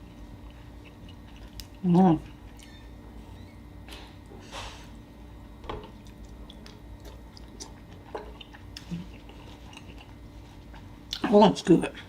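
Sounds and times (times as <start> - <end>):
faint steady hum: 0.0 - 12.0
chewing: 0.4 - 2.8, 5.9 - 11.2.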